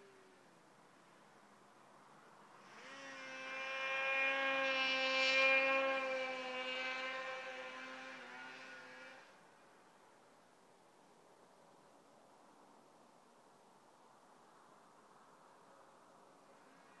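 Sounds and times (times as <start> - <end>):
steady motor hum: 2.6 - 9.4.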